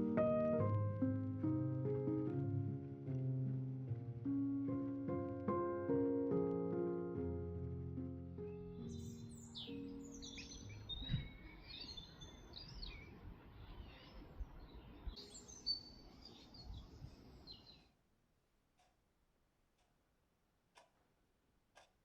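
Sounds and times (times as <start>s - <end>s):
outdoor background noise: 0.0s - 22.0s
small birds chirping and warbling: 8.5s - 17.9s.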